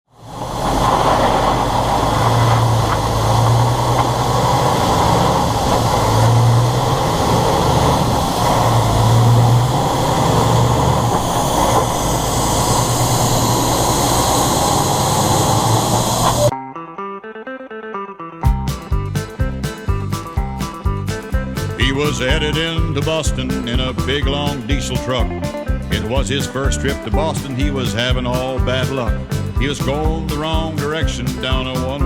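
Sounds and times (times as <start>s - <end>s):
truck engine and road drone: 0.1s - 16.5s, 18.7s - 32.0s
low hum: 0.2s - 16.5s.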